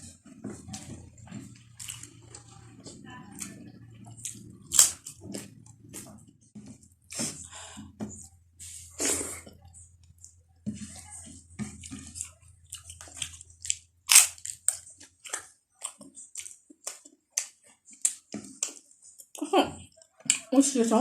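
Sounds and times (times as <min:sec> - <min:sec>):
wet chewing and lip-smacking: 0:00.6 - 0:06.4, 0:11.7 - 0:20.5.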